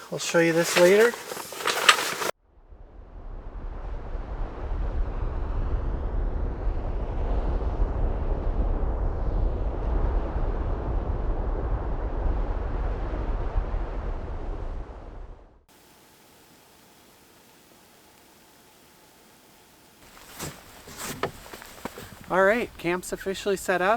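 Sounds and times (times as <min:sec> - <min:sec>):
wind buffeting microphone: 0:20.0 - 0:23.9.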